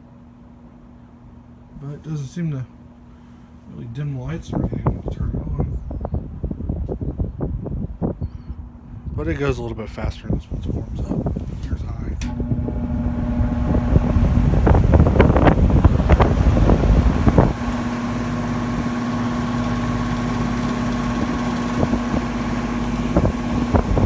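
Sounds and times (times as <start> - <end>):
wind buffeting microphone: 4.2 - 24.0
box fan motor hum: 10.3 - 24.0
rushing air: 10.8 - 24.0.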